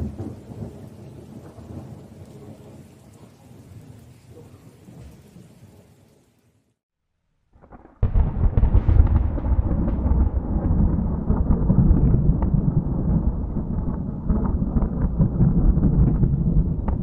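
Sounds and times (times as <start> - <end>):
rolling thunder: 0.0 - 4.0, 7.6 - 17.0.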